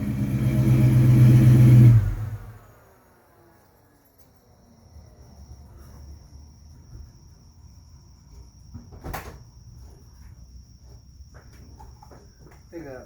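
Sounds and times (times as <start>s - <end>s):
crickets chirping: 2.4s - 13.0s.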